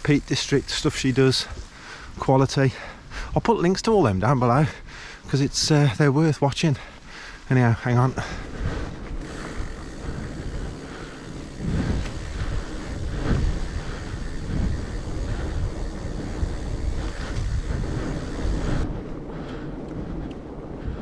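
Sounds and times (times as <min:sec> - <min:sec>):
bike rumbling over rough ground: 0:00.0 - 0:02.5, 0:07.6 - 0:20.6
wind buffeting microphone: 0:06.6 - 0:21.0.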